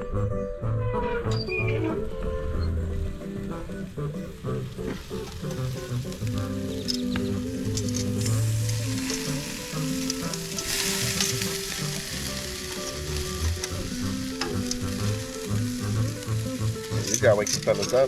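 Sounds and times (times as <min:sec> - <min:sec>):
song playing: 0:00.0 - 0:18.0
food sizzling and crackling: 0:03.2 - 0:18.0.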